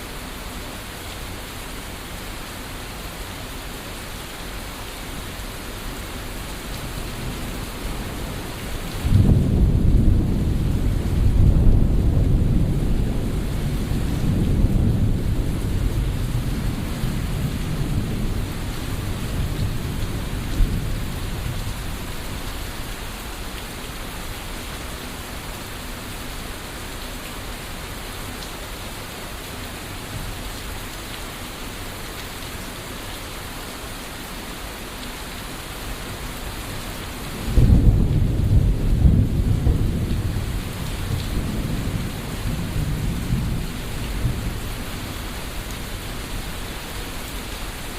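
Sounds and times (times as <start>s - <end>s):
steady rain falling: 0.0s - 47.9s
rolling thunder: 8.9s - 22.0s, 37.3s - 45.2s
loud thunderclap: 9.0s - 18.3s, 37.4s - 44.5s.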